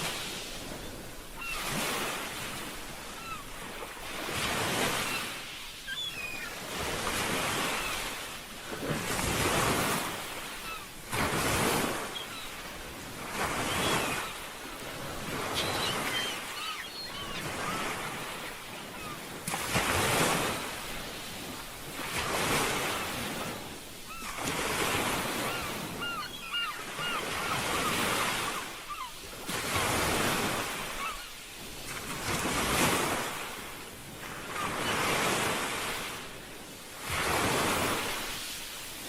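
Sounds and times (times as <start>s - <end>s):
ocean surf washing ashore: 0.0s - 39.0s.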